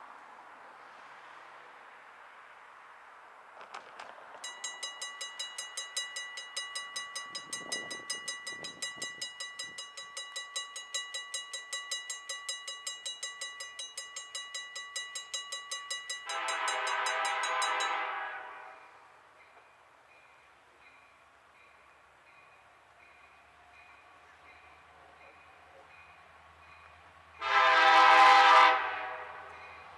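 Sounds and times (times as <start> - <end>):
crossing warning bell ringing: 4.4 - 27.9, 28.8 - 29.9
locomotive air horn blast: 16.3 - 19.0, 27.4 - 29.6.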